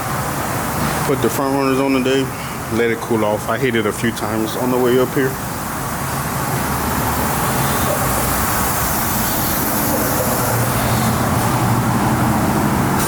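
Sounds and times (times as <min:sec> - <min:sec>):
truck engine droning: 0:00.0 - 0:13.0
broad hiss: 0:06.8 - 0:12.1.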